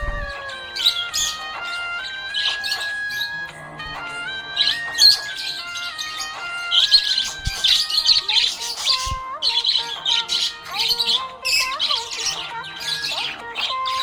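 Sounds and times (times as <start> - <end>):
background music: 0.0 - 14.0
budgerigars chirping: 0.1 - 14.0.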